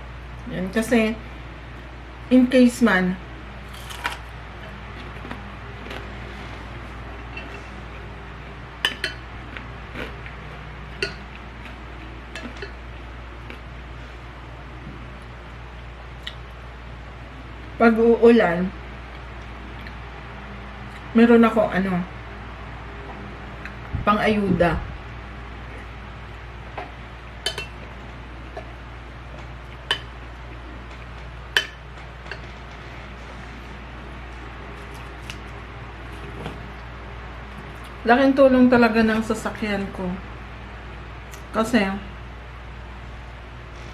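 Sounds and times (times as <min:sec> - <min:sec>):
steady low hum: 0:00.0 - 0:43.9
cutlery clinking against dish: 0:27.5 - 0:27.8.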